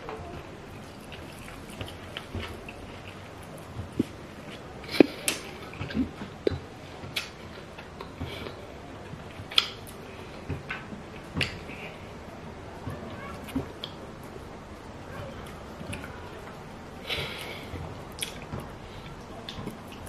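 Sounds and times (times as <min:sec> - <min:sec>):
mouth clicks from chewing: 0:18.2 - 0:20.0.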